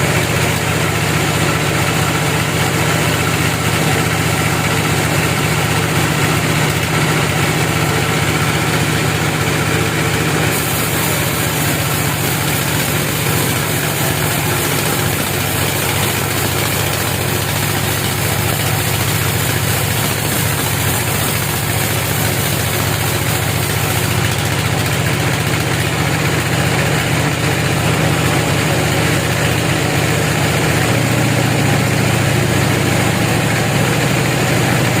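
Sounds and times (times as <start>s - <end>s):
wood-cutting machine engine humming: 0.0s - 35.0s.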